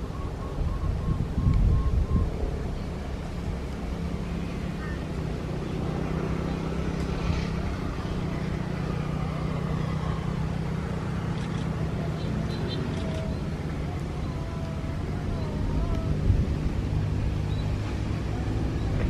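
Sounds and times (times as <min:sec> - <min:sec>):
wind buffeting microphone: 0:00.0 - 0:04.6, 0:12.9 - 0:19.0.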